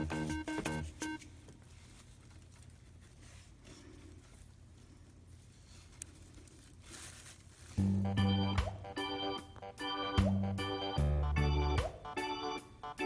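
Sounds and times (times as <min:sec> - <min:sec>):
low room noise: 0:00.0 - 0:13.0
background music notes: 0:07.8 - 0:13.0.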